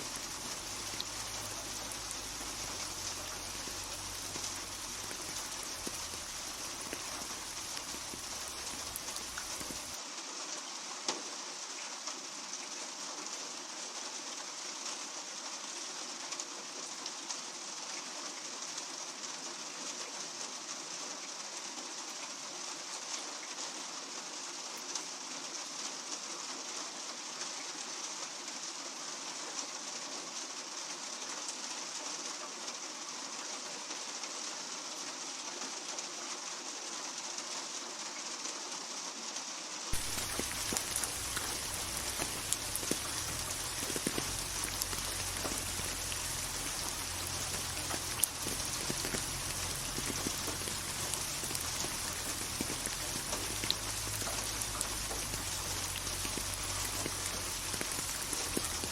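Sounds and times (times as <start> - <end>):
ticks of raindrops: 0.0 - 10.0, 39.9 - 58.9
steady rain falling: 0.0 - 58.9.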